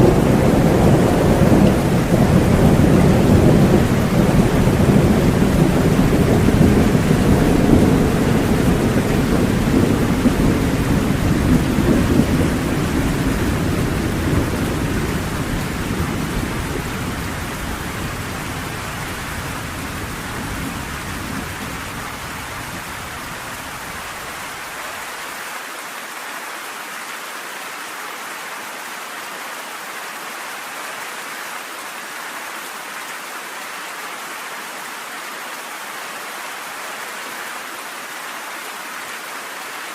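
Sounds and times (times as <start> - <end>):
thunder rumbling: 0.0 - 24.6
rain falling steadily: 0.0 - 39.9.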